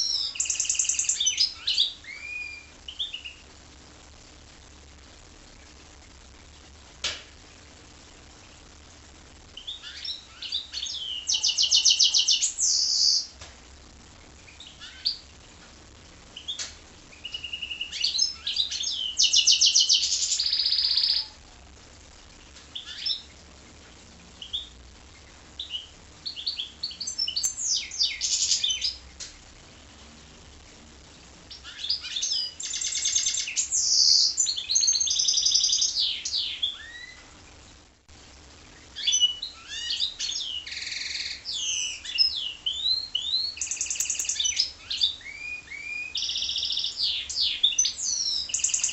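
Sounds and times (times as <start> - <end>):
songbird singing trills and chirps: 0.0 - 3.5, 9.6 - 13.4, 16.4 - 21.4, 22.7 - 23.3, 24.4 - 29.0, 31.5 - 37.2, 39.0 - 48.9.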